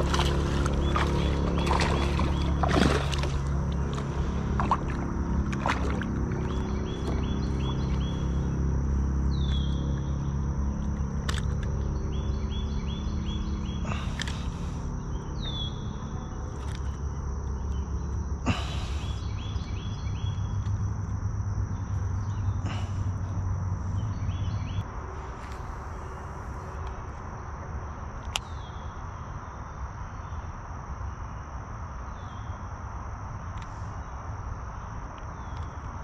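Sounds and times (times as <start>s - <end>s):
birds chirping: 0.0s - 24.9s
low rumble: 0.0s - 25.2s
high insect drone: 0.0s - 36.0s.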